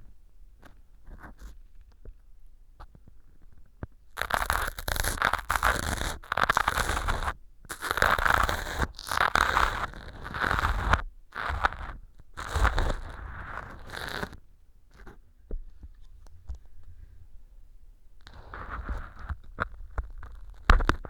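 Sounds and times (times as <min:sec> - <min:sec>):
ear pick scraping foam: 0:04.2 - 0:15.2, 0:18.3 - 0:21.0.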